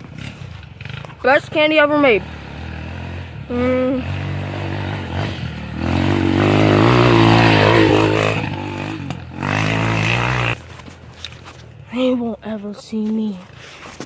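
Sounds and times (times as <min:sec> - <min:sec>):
off-road vehicle engine revving: 0:00.0 - 0:10.6.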